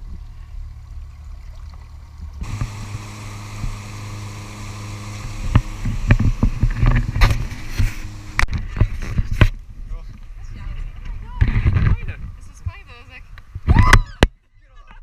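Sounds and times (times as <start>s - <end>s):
motor humming: 2.2s - 9.4s.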